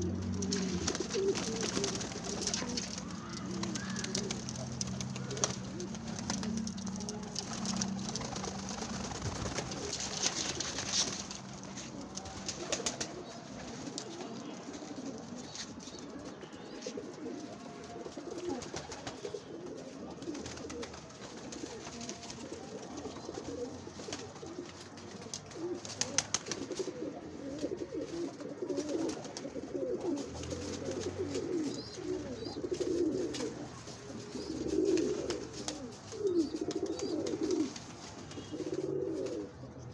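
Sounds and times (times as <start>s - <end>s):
pigeons cooing: 0.0s - 39.9s
sharp clicks and rustles: 0.2s - 13.2s.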